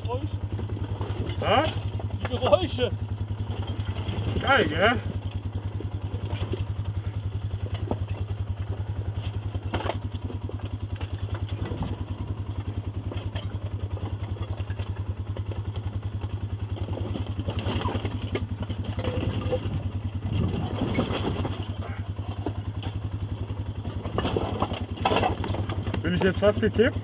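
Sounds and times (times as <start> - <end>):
atv engine running: 0.0 - 27.0.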